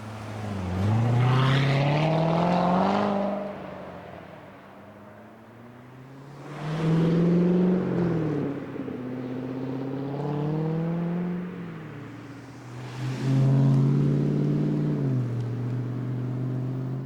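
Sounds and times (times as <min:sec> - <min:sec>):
car accelerating hard: 0:00.0 - 0:03.7.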